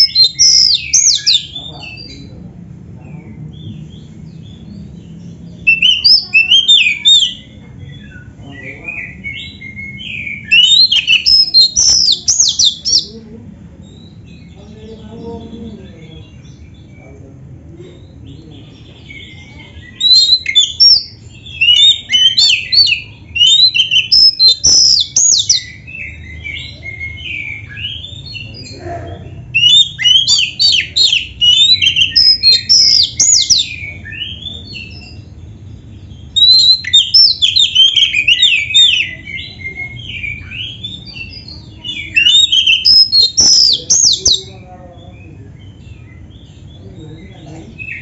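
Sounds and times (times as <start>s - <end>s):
bird singing whistled phrases: 0.0s - 1.6s, 5.6s - 13.1s, 19.9s - 28.0s, 29.6s - 35.2s, 36.4s - 44.5s
quiet bird twittering: 3.0s - 48.0s.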